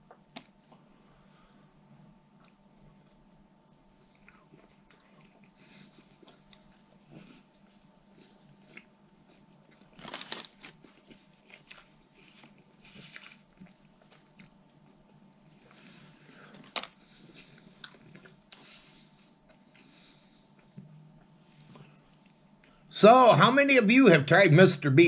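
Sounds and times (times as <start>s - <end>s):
person chewing: 4.0s - 22.8s.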